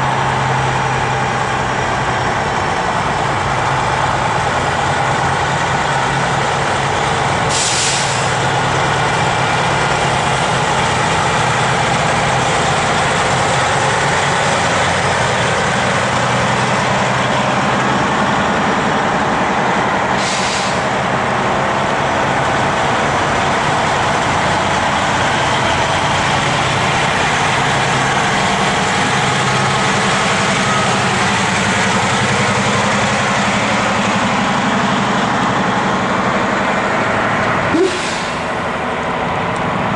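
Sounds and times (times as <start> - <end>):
truck diesel engines running: 0.0 - 39.9
air brake hisses: 7.5 - 8.3, 20.2 - 20.8, 37.7 - 38.5.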